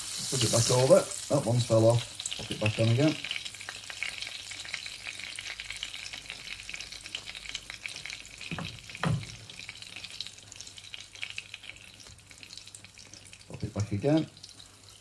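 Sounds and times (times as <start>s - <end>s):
bread and bacon frying: 0.0s - 15.0s
dull knocks: 8.5s - 9.4s.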